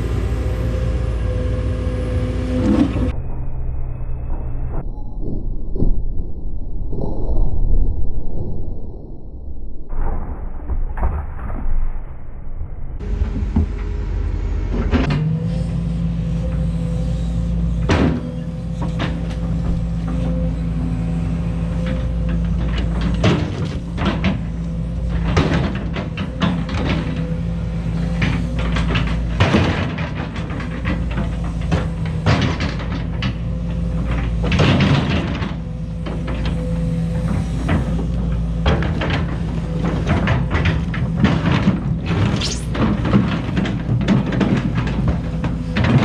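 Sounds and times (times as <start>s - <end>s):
excavator diesel engine running: 0.0s - 3.7s, 13.0s - 46.0s
clanks of rock and concrete: 28.0s - 46.0s.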